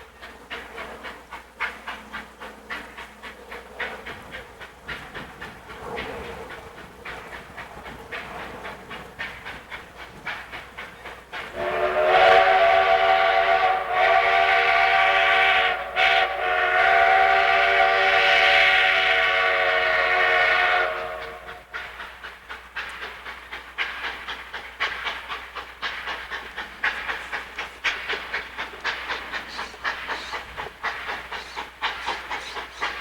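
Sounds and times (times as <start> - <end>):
steam locomotive exhaust beating: 0.0 - 33.0
steam whistle chord: 11.6 - 21.6.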